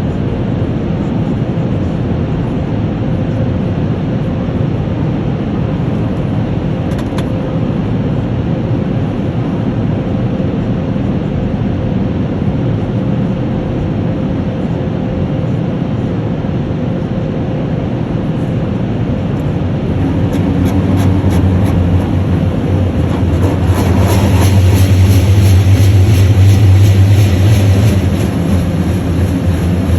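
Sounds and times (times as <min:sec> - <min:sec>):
car wash machinery rumbling: 0:18.4 - 0:29.9
deep hum: 0:18.4 - 0:29.9.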